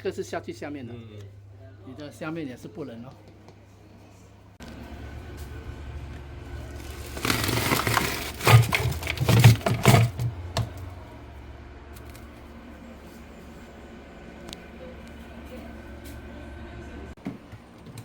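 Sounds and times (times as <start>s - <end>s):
fridge hum: 4.6s - 18.0s
ice cracking and scraping: 6.7s - 10.3s.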